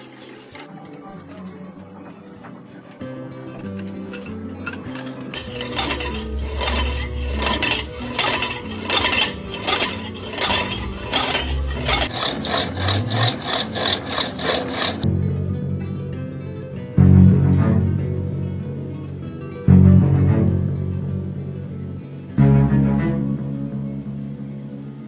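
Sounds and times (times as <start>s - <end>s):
metal scraping on lathe: 4.1s - 15.0s
background music with bass: 15.0s - 25.0s.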